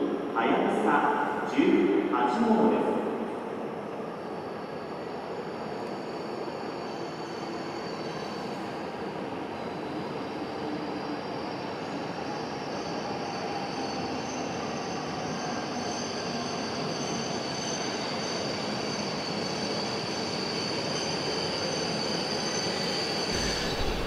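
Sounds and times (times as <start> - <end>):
train running noise: 18.6 - 24.0
high even whine: 23.4 - 24.0.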